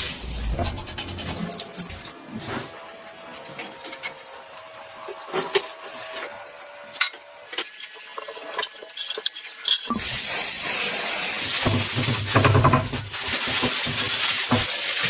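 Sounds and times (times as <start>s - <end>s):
low hum: 0.0s - 2.8s
spraying hiss: 10.0s - 11.7s.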